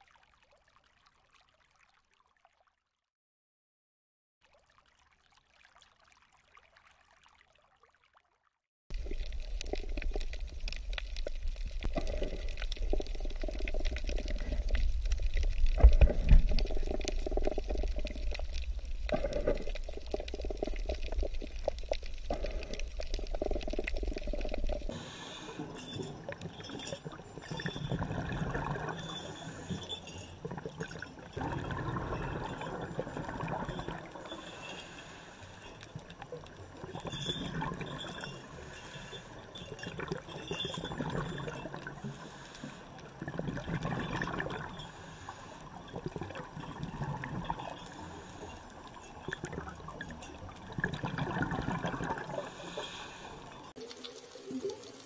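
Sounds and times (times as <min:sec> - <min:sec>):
light water noise: 0:00.0 - 0:03.1, 0:04.4 - 0:55.0.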